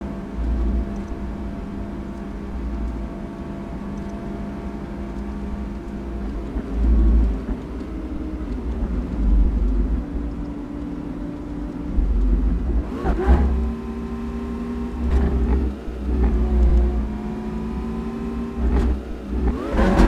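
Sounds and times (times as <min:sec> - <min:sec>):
sports car engine droning: 0:00.0 - 0:20.0
deep low rumbles: 0:05.1 - 0:14.1, 0:14.7 - 0:17.9.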